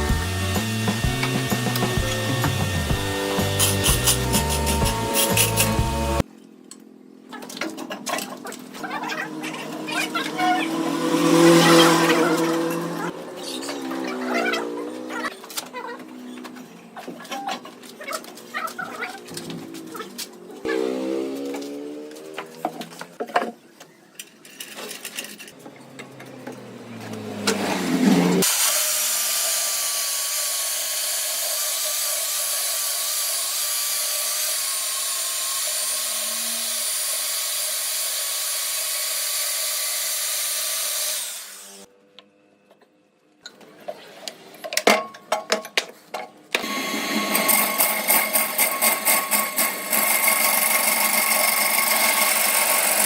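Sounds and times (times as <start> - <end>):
power tool cutting wood: 0.0 - 6.2, 9.1 - 15.4, 19.2 - 23.2, 26.2 - 41.9, 46.6 - 53.0
tool running with rapid pulsing: 0.0 - 6.2, 28.4 - 41.9, 46.6 - 53.0.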